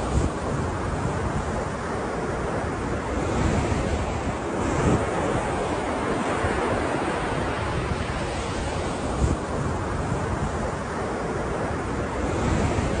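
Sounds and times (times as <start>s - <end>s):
ocean waves washing in: 0.0s - 13.0s
wind rumbling on microphone: 0.0s - 13.0s.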